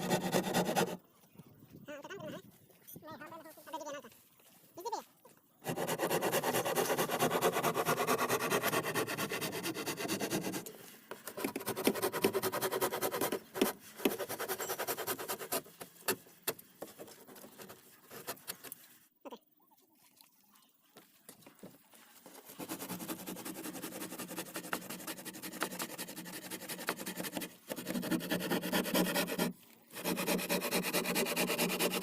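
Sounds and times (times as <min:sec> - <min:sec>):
hand tool scraping wood: 0:00.0 - 0:01.0, 0:05.6 - 0:19.0, 0:22.3 - 0:32.0.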